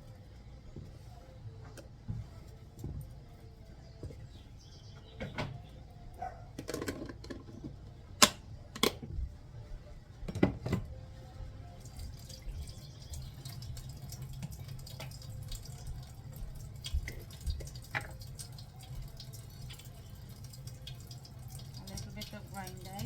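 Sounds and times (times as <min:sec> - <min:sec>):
running and dripping water: 0:11.7 - 0:23.0.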